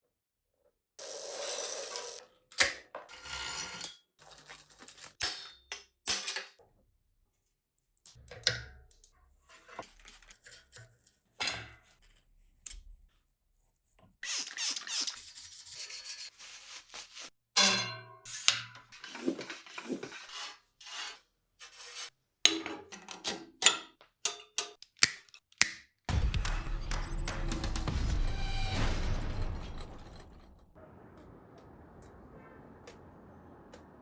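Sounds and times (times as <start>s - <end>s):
clicks of bicycle parts: 2.5s - 3.1s, 7.8s - 9.2s, 22.5s - 26.0s
rubbing and scraping: 13.7s - 17.4s, 18.3s - 22.2s.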